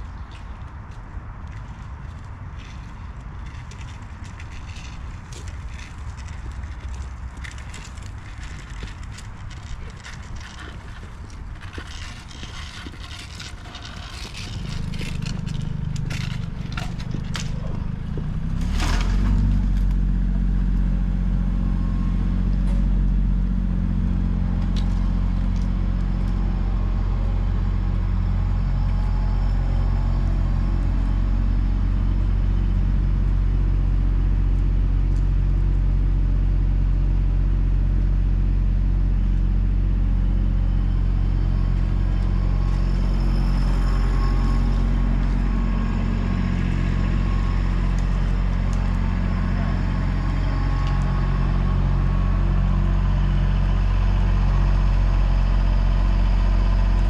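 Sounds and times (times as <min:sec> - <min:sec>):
rattling and clatter: 0:01.5 - 0:27.3
truck engine running: 0:02.9 - 0:57.0.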